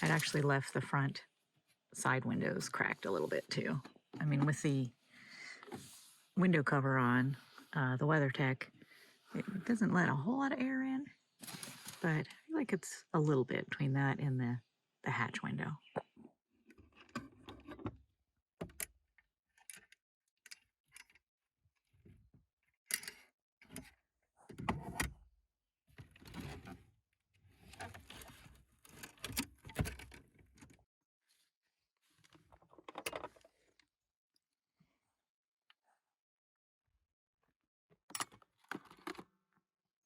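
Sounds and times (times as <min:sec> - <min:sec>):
rustling and scraping: 0:00.0 - 0:00.7, 0:11.4 - 0:12.0.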